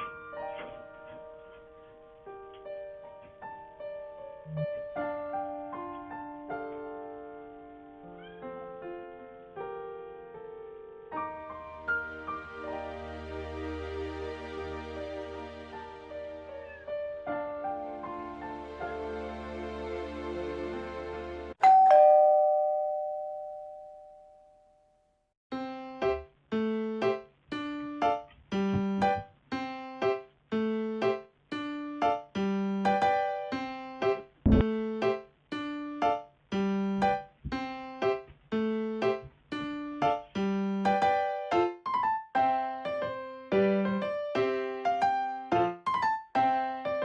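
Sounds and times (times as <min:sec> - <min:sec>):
held chord: 0:21.6 - 0:24.2
bright chime: 0:21.6 - 0:24.6.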